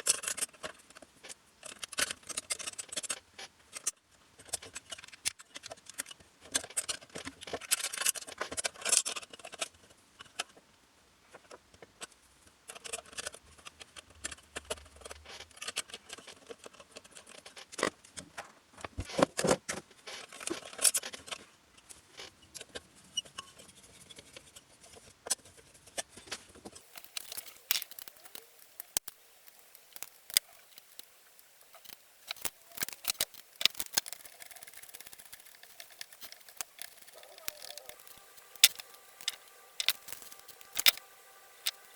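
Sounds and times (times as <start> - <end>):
rustling and scraping: 12.7 - 41.9
metal parts and tools clicking: 26.9 - 41.9.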